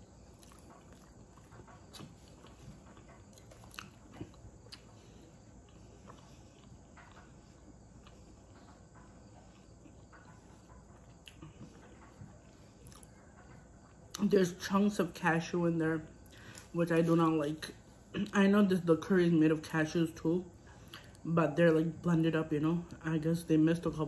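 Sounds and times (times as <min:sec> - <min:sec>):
chewing mouth clicks: 0:00.2 - 0:14.2.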